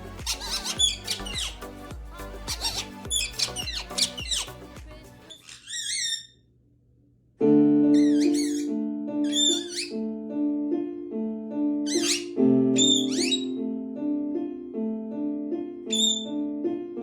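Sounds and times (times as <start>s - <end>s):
parrot squeaky calls: 0.0s - 4.6s, 5.3s - 6.4s, 8.0s - 10.0s, 11.9s - 13.6s, 15.9s - 16.4s
piano music: 0.0s - 5.3s, 7.4s - 17.0s.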